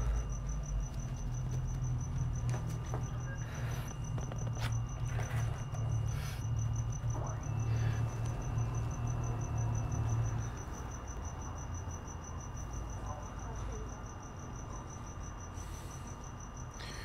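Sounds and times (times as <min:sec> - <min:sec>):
low hum: 0:00.0 - 0:13.3
cricket chirping: 0:00.0 - 0:17.0.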